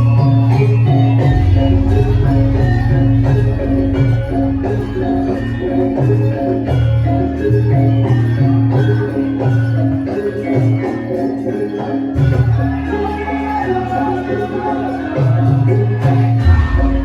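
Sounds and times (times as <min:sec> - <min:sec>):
heavy low bass: 0:00.0 - 0:08.7, 0:16.4 - 0:17.0
gamelan metallophones playing: 0:00.0 - 0:17.0.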